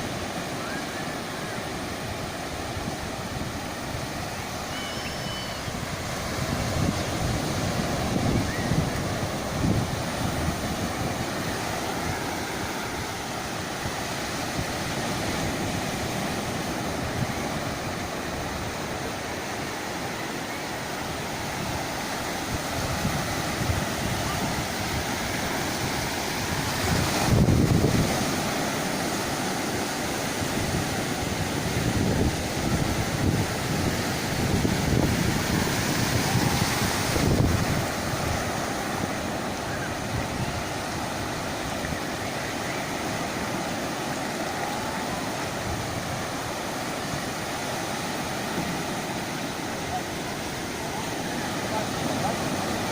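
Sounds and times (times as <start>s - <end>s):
surf breaking on shore: 0.0s - 52.9s
wind buffeting microphone: 5.7s - 19.0s, 21.2s - 29.2s, 30.2s - 49.2s.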